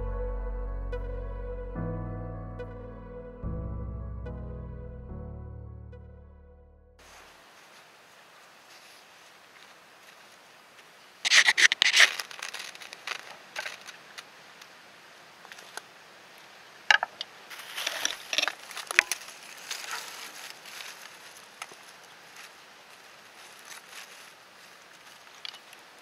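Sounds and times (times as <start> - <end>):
crunching and crackling: 11.3 - 14.3, 17.5 - 26.0.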